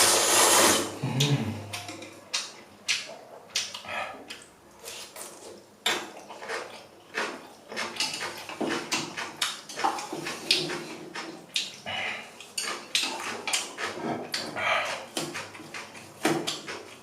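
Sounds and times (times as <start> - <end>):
person slurping noodles: 0.0 - 1.6
chewing: 1.2 - 17.0.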